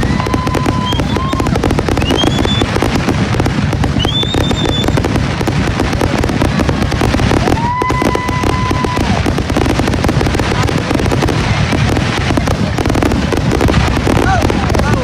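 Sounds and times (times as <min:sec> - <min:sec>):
firework whistle: 0:00.0 - 0:05.2, 0:07.2 - 0:09.7
fireworks bangs and crackling: 0:00.0 - 0:15.0.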